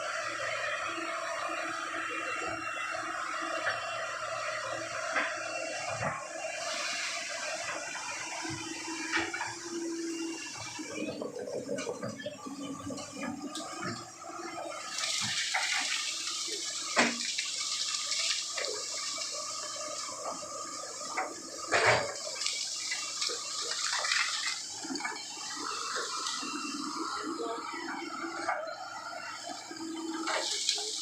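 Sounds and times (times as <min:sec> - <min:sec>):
water pouring and splashing: 0:13.8 - 0:27.0.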